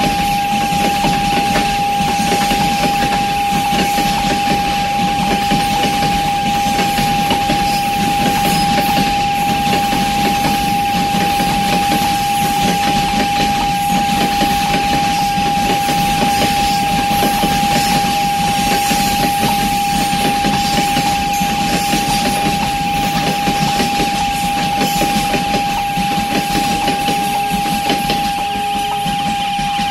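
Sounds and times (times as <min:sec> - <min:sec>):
freight train wheels clattering: 0:00.0 - 0:29.9.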